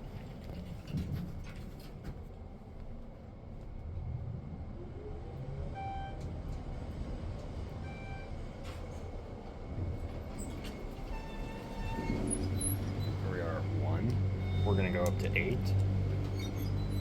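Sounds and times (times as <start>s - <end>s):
elevator rumble: 10.0s - 17.0s.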